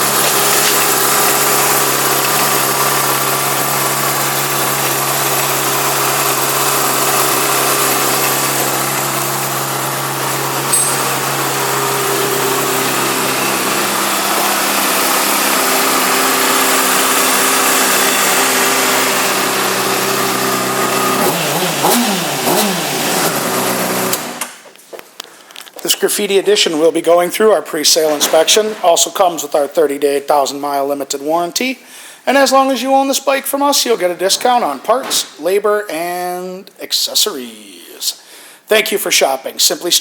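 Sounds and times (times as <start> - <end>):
motorcycle engine idling and revving: 1.1 - 24.4.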